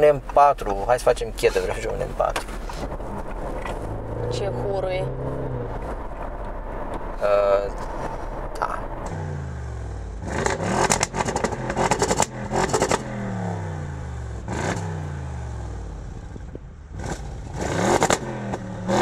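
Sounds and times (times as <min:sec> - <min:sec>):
exhaust crackles: 0:00.0 - 0:19.0
car engine accelerating hard: 0:01.5 - 0:19.0.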